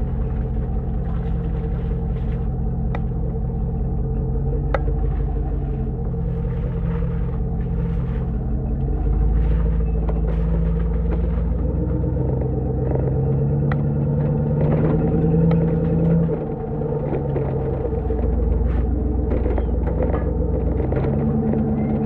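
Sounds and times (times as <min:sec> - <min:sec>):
engine exhaust rumble while driving: 0:00.0 - 0:22.0.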